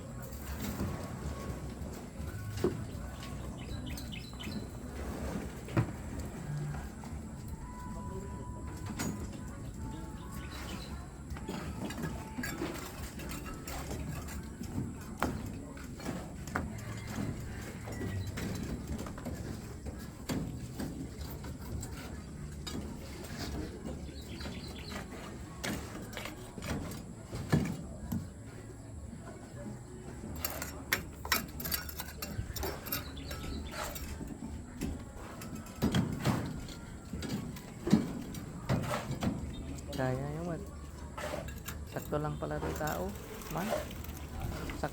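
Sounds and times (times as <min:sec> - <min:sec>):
distant voices: 0:00.0 - 0:44.9
knocks and clatter: 0:08.6 - 0:28.6, 0:30.1 - 0:44.9
tools knocking and clicking: 0:30.4 - 0:39.9.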